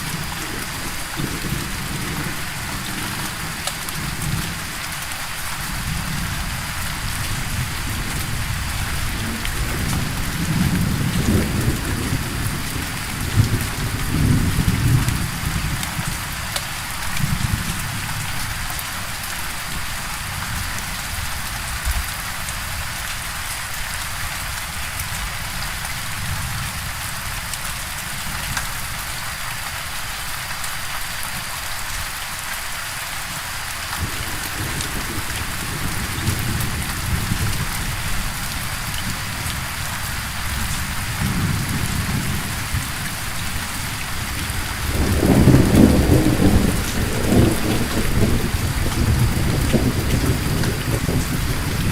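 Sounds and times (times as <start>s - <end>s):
thunder rumbling: 0.0s - 4.8s, 5.7s - 16.3s, 34.0s - 51.9s
steady rain hissing: 0.0s - 51.9s.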